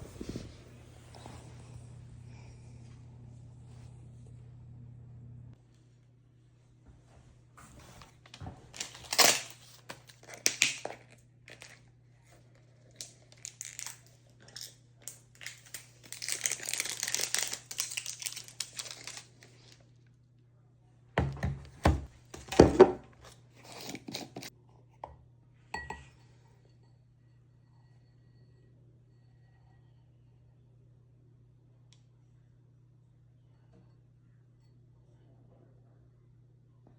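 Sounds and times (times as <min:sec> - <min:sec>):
steady low hum: 0:00.0 - 0:07.8
packaging rustling and crinkling: 0:08.0 - 0:11.8, 0:12.8 - 0:14.1, 0:15.1 - 0:19.8.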